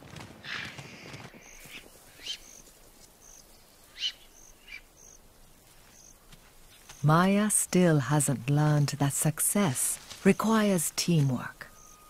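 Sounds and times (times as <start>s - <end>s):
bird calls: 0.4s - 5.2s, 10.3s - 12.0s
insect chirps: 1.3s - 12.0s.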